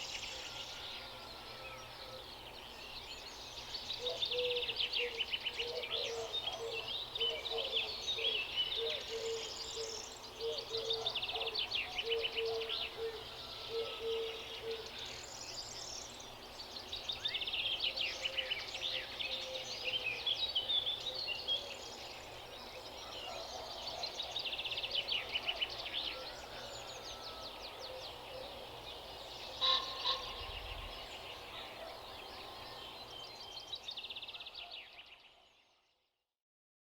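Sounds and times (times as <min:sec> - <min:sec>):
songbirds chirping and trilling: 0:00.0 - 0:36.2
low pulsing bird call: 0:29.5 - 0:33.2.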